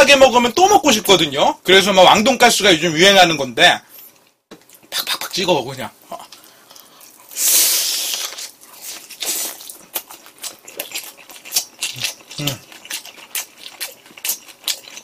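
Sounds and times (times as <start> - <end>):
crunching food: 6.2 - 15.0
hiss of bite: 7.3 - 8.5.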